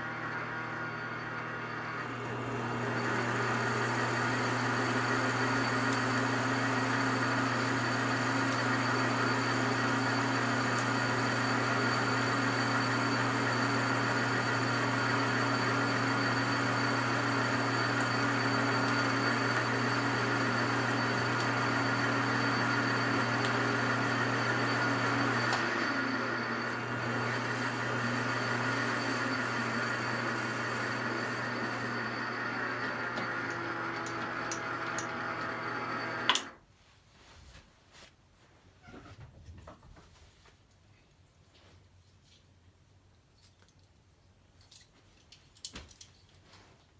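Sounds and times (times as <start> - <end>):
metal lathe humming: 0.0 - 36.6.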